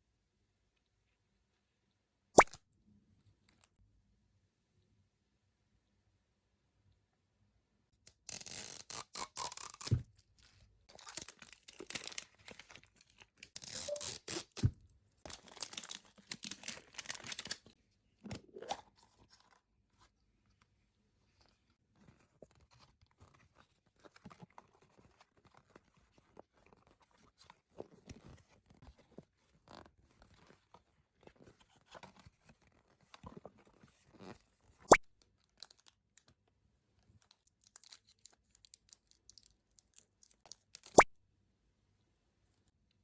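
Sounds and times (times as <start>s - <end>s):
plastic packaging crinkling and rustling: 9.8s - 17.8s.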